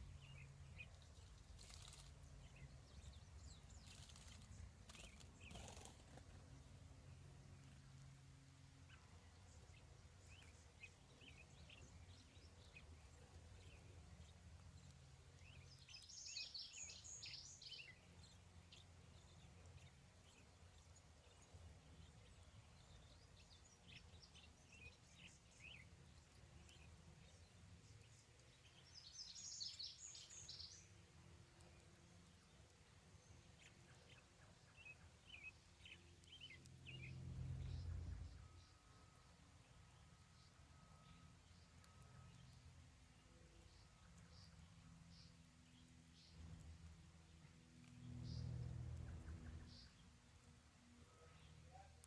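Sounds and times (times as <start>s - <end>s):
bird chirping: 0.0s - 52.0s
low steady rumble: 30.8s - 51.4s.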